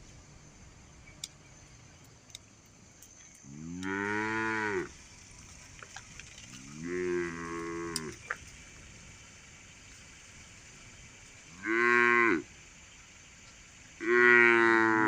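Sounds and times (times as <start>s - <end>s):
cow mooing: 3.5s - 4.9s, 6.6s - 8.2s, 11.5s - 12.5s, 14.0s - 15.0s.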